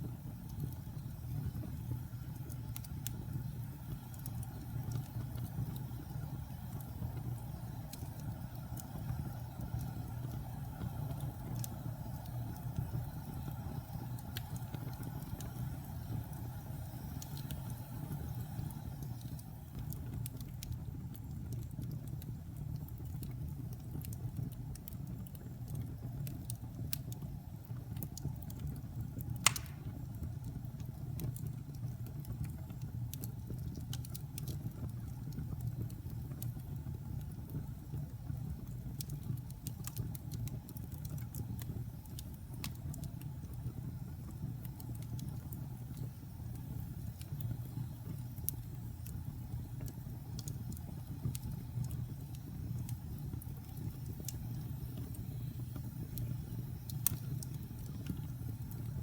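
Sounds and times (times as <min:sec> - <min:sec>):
fire crackles: 0:00.0 - 0:59.0
wood fire rumbling: 0:00.0 - 0:59.0
loud fire pop: 0:29.4 - 0:30.0.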